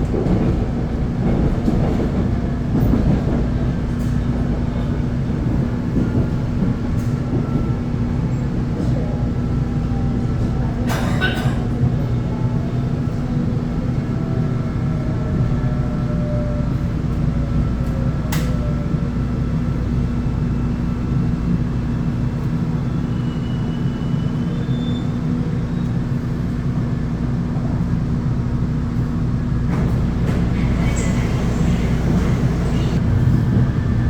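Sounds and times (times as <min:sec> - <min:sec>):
train rumbling on rails: 0:00.0 - 0:34.0.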